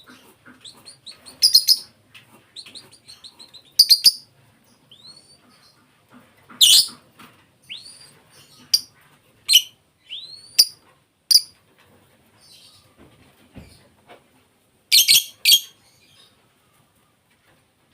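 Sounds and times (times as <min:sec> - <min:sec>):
bird chirping shrilly: 0:02.6 - 0:04.3, 0:14.9 - 0:15.7.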